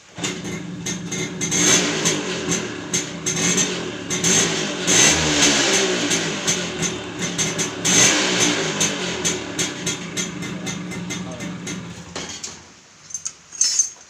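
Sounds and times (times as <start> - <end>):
moped engine running: 0.0 - 12.2
rapid clicking and rattling: 6.0 - 12.6.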